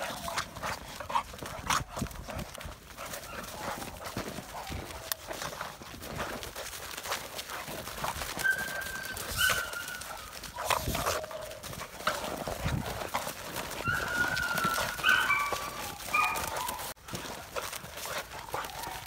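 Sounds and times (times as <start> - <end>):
paws and claws scuffling: 0.0 - 19.0
puppies whining and yipping: 3.0 - 5.4, 8.1 - 17.0, 18.1 - 19.0.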